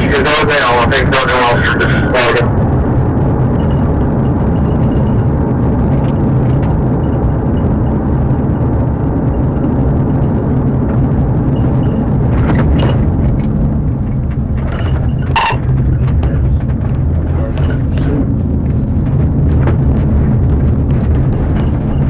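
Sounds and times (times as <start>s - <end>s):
car engine and tyre drone: 0.0s - 22.0s.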